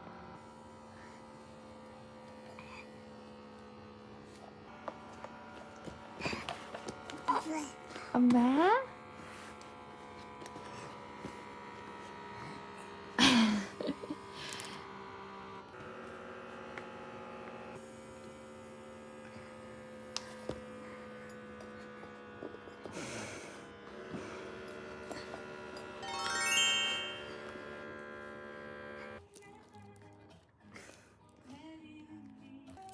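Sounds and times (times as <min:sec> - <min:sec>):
hum of held tones: 0:25.5 - 0:29.2.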